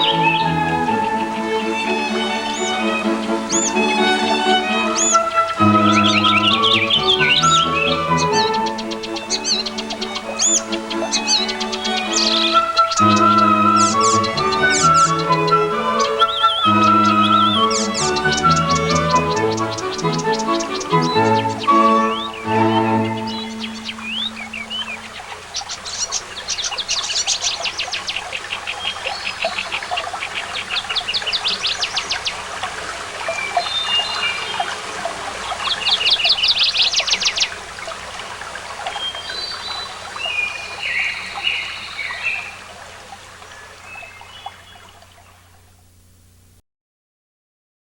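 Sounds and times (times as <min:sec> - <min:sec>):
songbirds chirping and trilling: 0:00.0 - 0:45.6.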